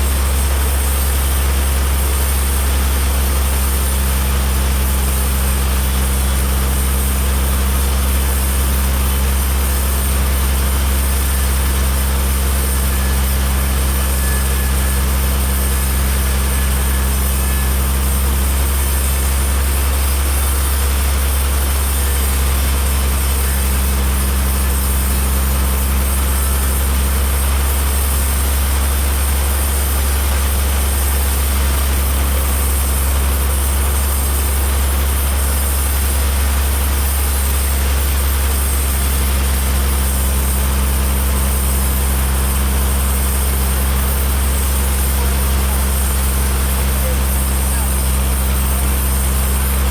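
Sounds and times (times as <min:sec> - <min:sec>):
heavy engine humming steadily: 0:00.0 - 0:49.9.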